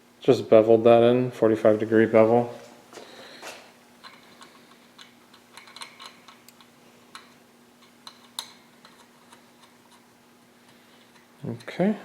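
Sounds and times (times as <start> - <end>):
faint steady hum: 0.0 - 12.0
small metal parts clicking: 4.0 - 9.7.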